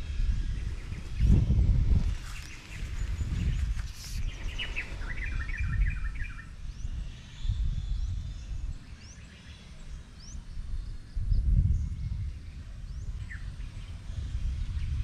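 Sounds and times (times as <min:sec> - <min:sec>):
birds chattering: 0:02.0 - 0:06.5.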